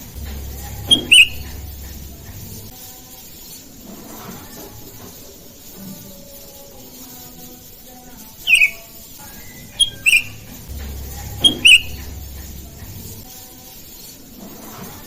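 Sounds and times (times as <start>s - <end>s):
low rumble: 0.0s - 2.7s, 10.4s - 13.2s
bird calls sliding downward: 0.7s - 1.7s, 8.5s - 10.5s, 11.4s - 12.2s.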